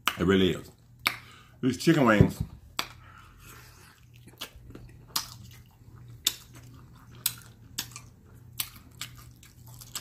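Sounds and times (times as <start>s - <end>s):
low steady hum: 0.0s - 10.0s
crunchy chewing: 3.4s - 10.0s.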